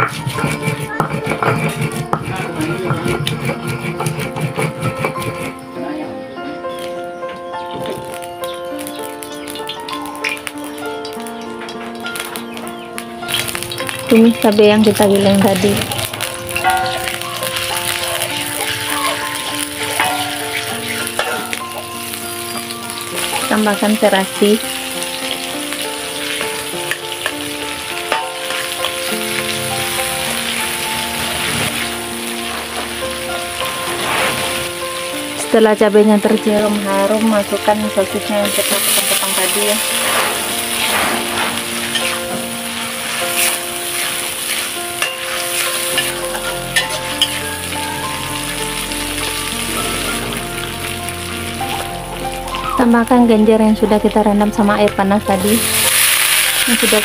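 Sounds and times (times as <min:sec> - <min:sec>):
metal spatula scraping a wok: 0:00.0 - 0:05.7, 0:15.6 - 0:21.8, 0:38.6 - 0:47.6
paste sizzling in hot oil: 0:00.0 - 0:05.8, 0:06.7 - 0:52.9, 0:55.0 - 0:57.0
soft background music: 0:00.0 - 0:57.0.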